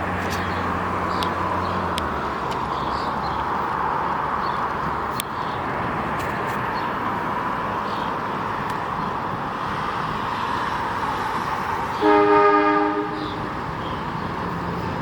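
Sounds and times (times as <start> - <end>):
train horn chord: 12.0 - 13.3.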